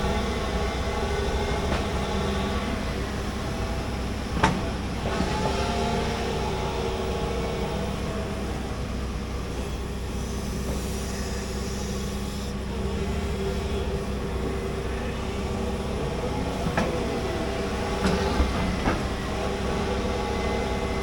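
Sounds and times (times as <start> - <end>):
excavator engine drone: 0.0 - 21.0
hydraulic whine: 0.0 - 21.0.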